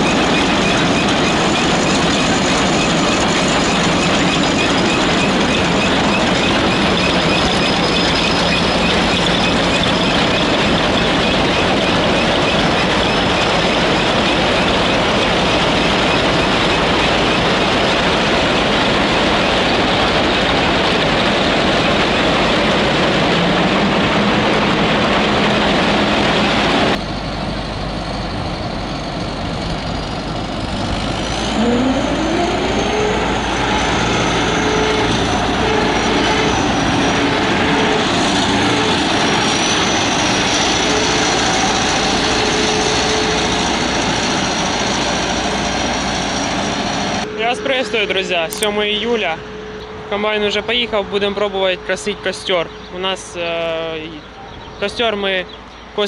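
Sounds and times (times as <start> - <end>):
combine harvester running: 0.0 - 56.0
engine whine climbing: 0.0 - 56.0.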